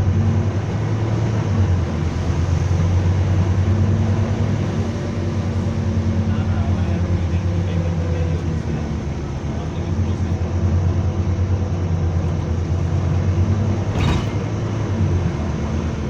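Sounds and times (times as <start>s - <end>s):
bus diesel engine droning: 0.0s - 16.0s.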